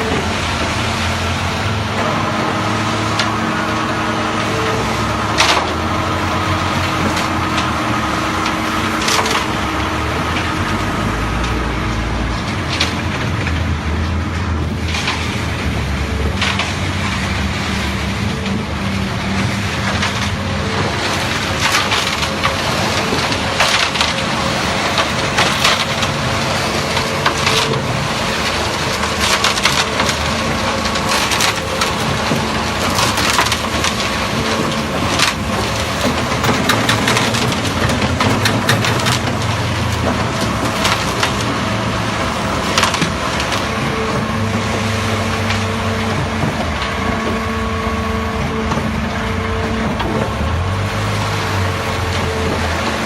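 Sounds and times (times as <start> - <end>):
engine hum: 0.0 - 53.0
sharp knocks and clatter: 19.2 - 53.0.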